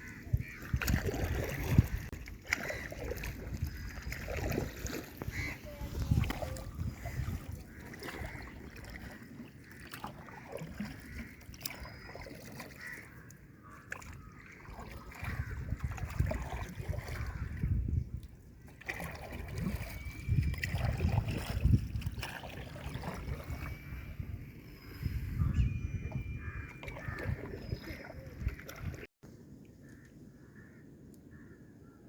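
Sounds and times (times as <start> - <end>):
water splashing and trickling: 0.0 - 29.6.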